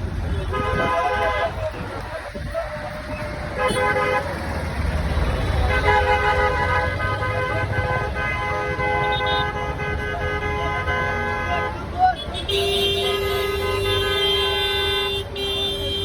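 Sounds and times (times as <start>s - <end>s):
vehicle horn blast: 0.3s - 1.6s, 3.6s - 4.2s, 5.7s - 16.0s.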